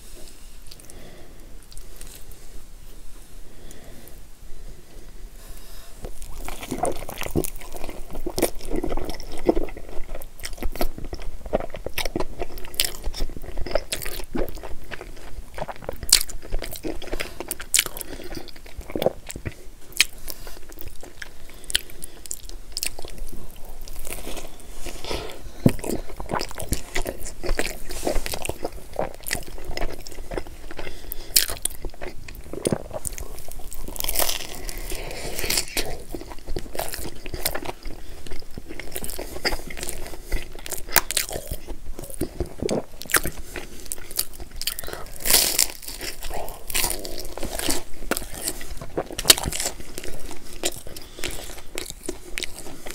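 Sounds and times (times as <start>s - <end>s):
biting and chewing food: 6.0s - 52.9s.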